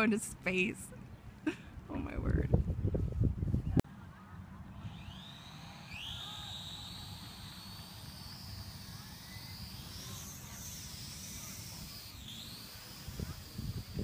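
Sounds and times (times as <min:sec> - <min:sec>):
quadcopter propellers whining: 0:04.7 - 0:14.0.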